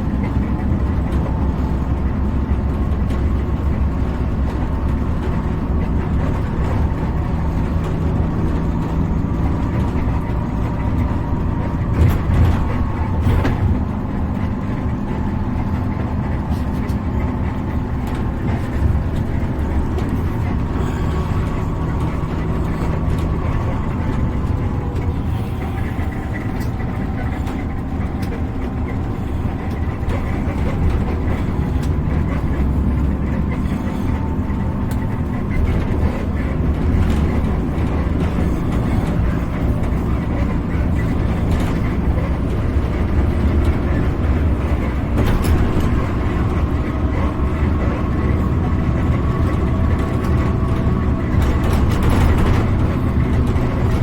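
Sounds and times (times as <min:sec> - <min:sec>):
traffic rumble on road: 0:00.0 - 0:54.0.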